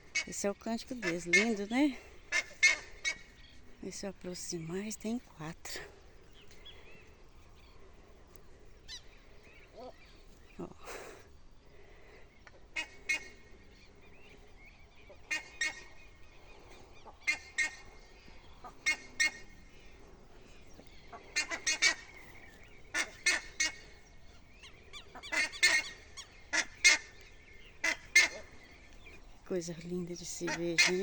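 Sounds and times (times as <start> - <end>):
ibises harsh honking calls: 25.2 - 27.1, 27.8 - 28.6.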